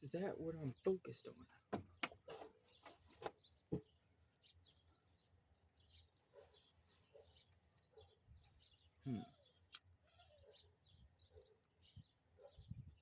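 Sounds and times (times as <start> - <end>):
faint bird chirps: 2.6 - 13.0.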